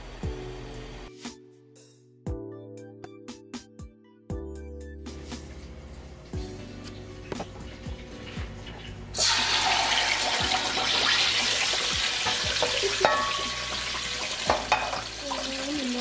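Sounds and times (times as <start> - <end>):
soft background music: 0.0 - 16.0
tomato paste sizzling in a pot: 6.5 - 16.0.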